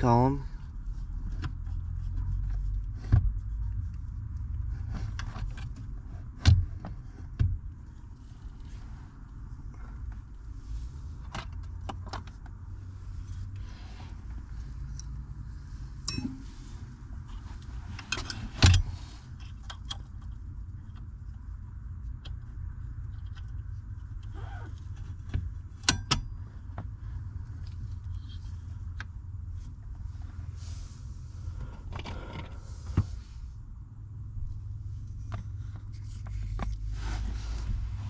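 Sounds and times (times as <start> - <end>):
steady low hum: 12.6 - 21.4
metallic clicks of tools: 16.1 - 16.5.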